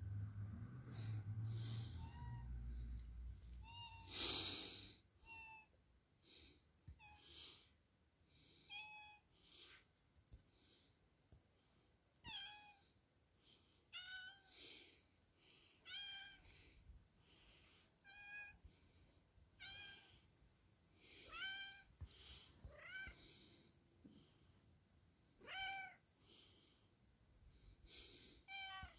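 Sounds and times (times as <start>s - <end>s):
cat meowing: 1.8s - 2.6s, 3.6s - 4.1s, 15.8s - 16.4s, 19.6s - 20.2s, 21.3s - 21.9s, 22.7s - 23.2s, 25.4s - 26.0s, 28.5s - 28.9s.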